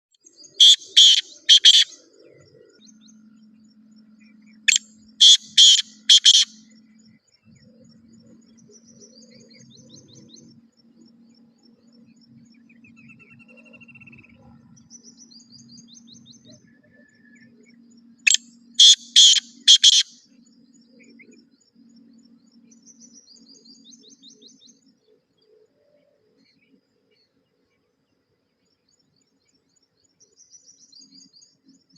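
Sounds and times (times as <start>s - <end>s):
small birds chirping: 0.2s - 16.8s, 17.4s - 31.9s
partridge harsh grating calls: 0.6s - 2.0s, 4.7s - 6.6s, 18.3s - 20.1s.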